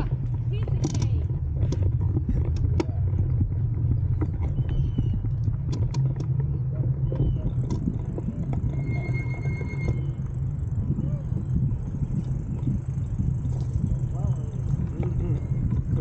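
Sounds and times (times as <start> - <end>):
light clicks and rattles: 0.0 - 6.8
wind and road noise rumble: 0.0 - 16.0.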